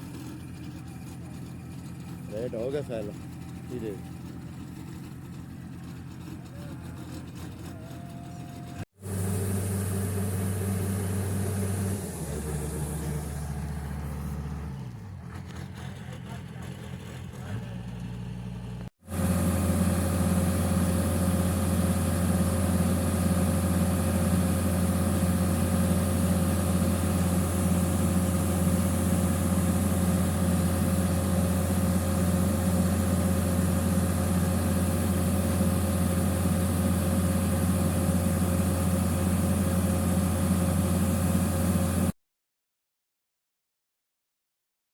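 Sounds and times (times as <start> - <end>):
combine harvester engine running: 0.0 - 42.1.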